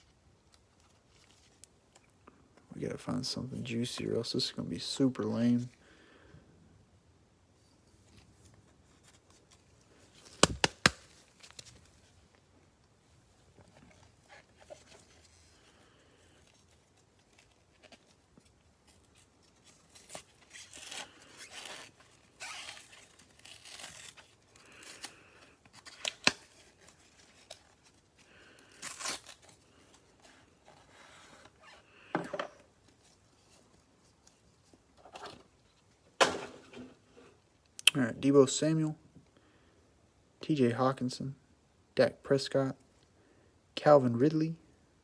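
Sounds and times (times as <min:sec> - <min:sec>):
sharp snaps: 0:10.4 - 0:11.1
packaging tearing and crinkling: 0:16.4 - 0:30.0.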